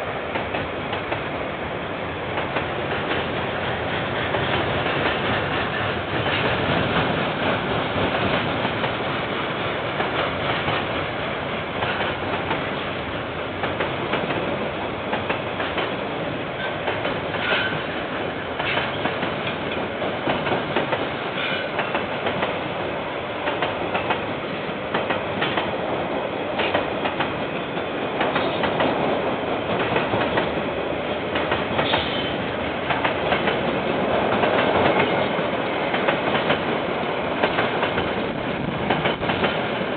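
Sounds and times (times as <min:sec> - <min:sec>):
train wagons rolling past: 0:02.2 - 0:39.9
wheels clicking over rail joints: 0:37.4 - 0:39.9.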